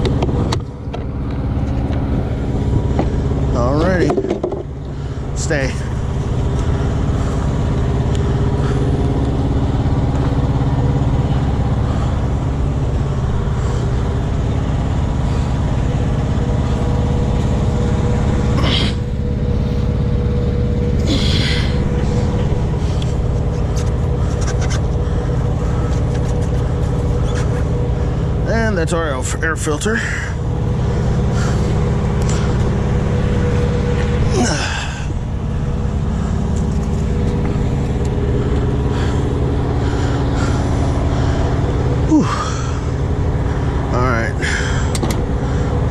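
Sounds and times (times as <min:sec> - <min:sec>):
sharp clicks and knocks: 0:00.0 - 0:02.0, 0:04.0 - 0:04.7, 0:44.9 - 0:45.2
truck engine idling: 0:00.0 - 0:45.9.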